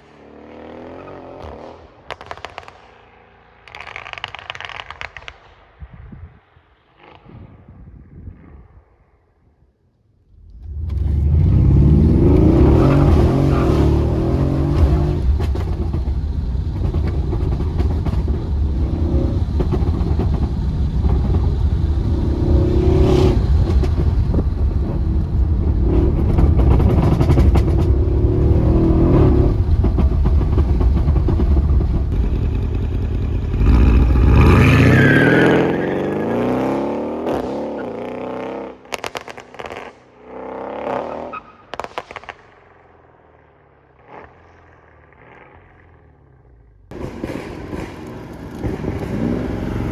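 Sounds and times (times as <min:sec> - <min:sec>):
exhaust pops and crackles: 0:01.4 - 0:05.7, 0:10.3 - 0:35.0, 0:38.8 - 0:40.0, 0:41.7 - 0:42.7, 0:46.9 - 0:49.9
car engine drone in cabin: 0:10.4 - 0:34.8
engine revving hard: 0:10.6 - 0:16.1, 0:16.7 - 0:38.5, 0:46.9 - 0:49.9.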